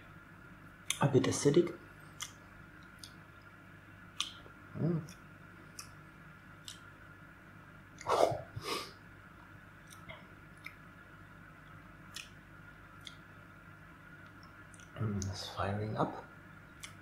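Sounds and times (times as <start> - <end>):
aquarium air pump humming and bubbling: 0.0 - 17.0
closed-mouth hum: 0.0 - 17.0
wet tongue and lip clicks: 2.2 - 3.2, 4.2 - 6.0, 6.6 - 6.9, 9.8 - 10.8, 11.6 - 12.4, 13.0 - 13.3, 14.2 - 15.0, 16.8 - 17.0.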